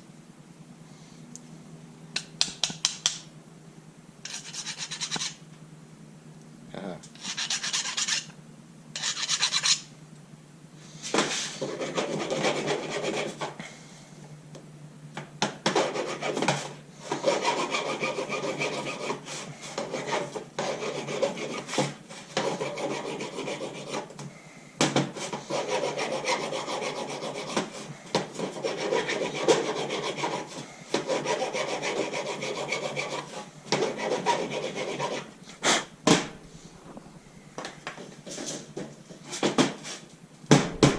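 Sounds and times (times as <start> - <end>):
hand scraping an engine part: 4.3 - 5.4, 7.2 - 8.3, 9.0 - 9.8.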